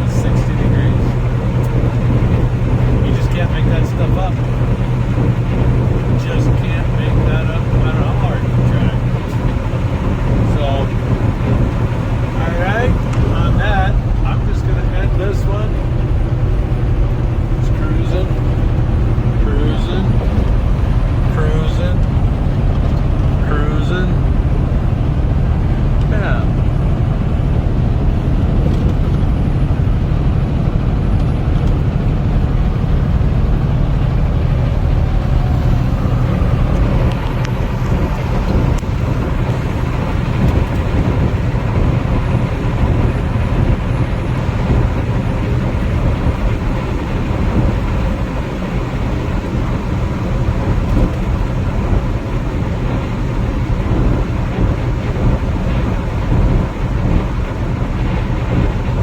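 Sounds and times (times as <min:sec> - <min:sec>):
truck engine drone and road noise: 0:00.0 - 0:59.0.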